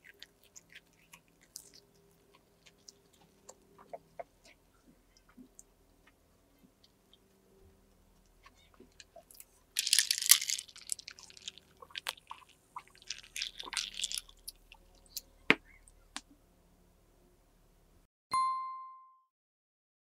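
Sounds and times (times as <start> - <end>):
crunchy chewing of toast: 0.0 - 6.2, 8.4 - 15.2.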